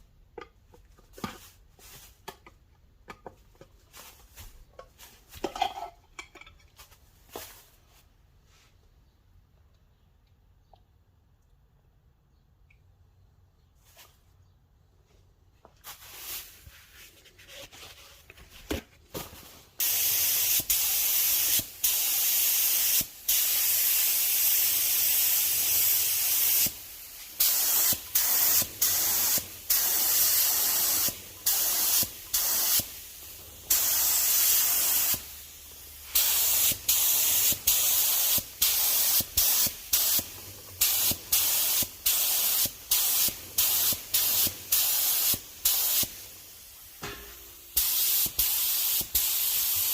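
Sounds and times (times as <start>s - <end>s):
spray paint hissing: 15.9s - 16.6s, 19.8s - 47.0s, 47.6s - 49.9s.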